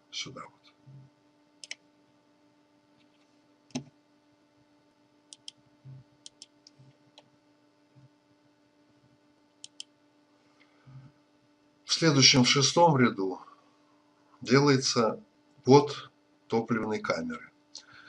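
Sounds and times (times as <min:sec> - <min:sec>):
faint steady hum: 0:00.0 - 0:18.0
computer mouse clicking: 0:01.6 - 0:01.8, 0:03.0 - 0:03.9, 0:05.3 - 0:05.6, 0:06.2 - 0:07.3, 0:09.6 - 0:09.9.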